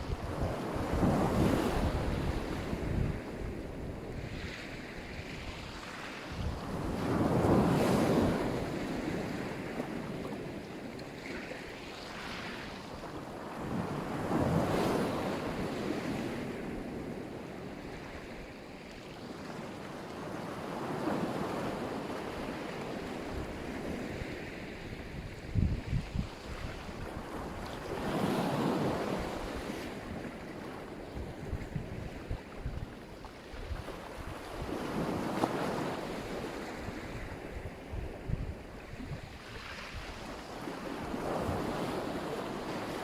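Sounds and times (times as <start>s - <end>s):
wind buffeting microphone: 0.0s - 10.6s, 22.2s - 42.8s
waves breaking on shore: 0.0s - 43.0s.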